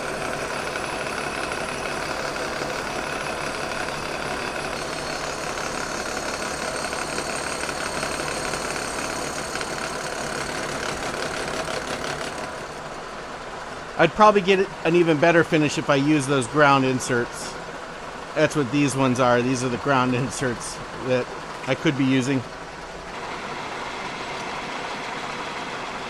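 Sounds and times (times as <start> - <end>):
milling machine cutting iron: 0.0 - 13.1.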